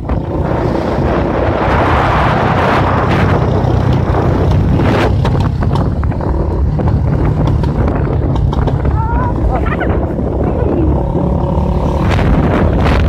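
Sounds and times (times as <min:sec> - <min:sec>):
vehicle engine humming: 0:00.0 - 0:13.0
wind buffeting microphone: 0:00.0 - 0:13.0
sharp clicks and rattles: 0:03.1 - 0:13.0.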